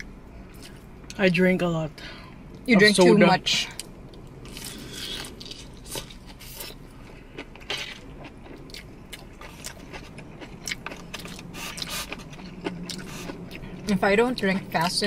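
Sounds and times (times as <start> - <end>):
chewing and crunching: 0.0 - 1.0, 3.6 - 14.8
faint low hum: 0.0 - 15.0.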